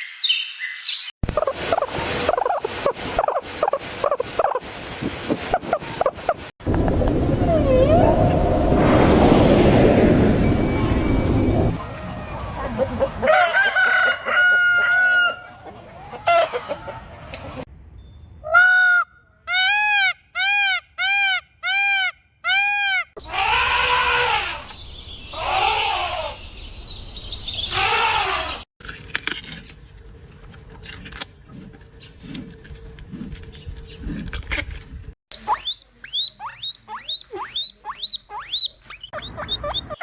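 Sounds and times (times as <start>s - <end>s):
chickens and rooster calling: 11.8s - 17.7s, 18.4s - 28.7s.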